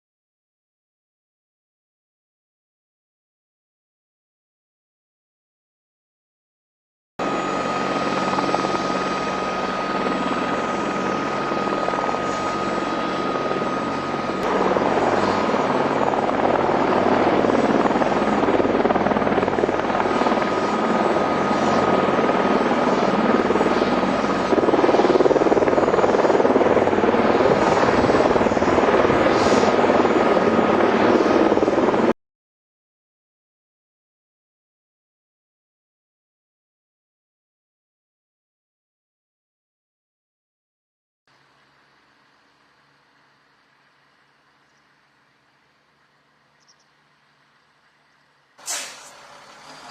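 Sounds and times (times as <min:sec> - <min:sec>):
high turbine whine: 0:07.2 - 0:32.1
helicopter rotor and turbine: 0:07.2 - 0:32.2, 0:41.4 - 0:49.9.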